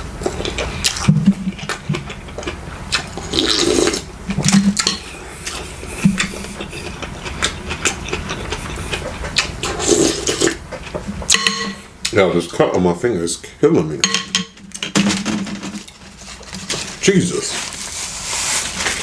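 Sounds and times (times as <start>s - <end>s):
wet mouth clicks and chewing: 0.2s - 11.4s
slurping liquid: 0.3s - 10.6s.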